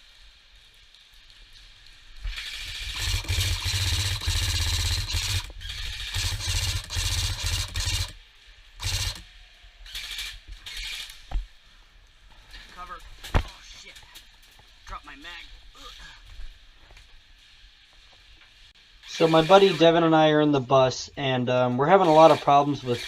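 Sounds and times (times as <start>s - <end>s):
airsoft gun firing full-auto: 2.4s - 8.2s, 8.8s - 9.2s.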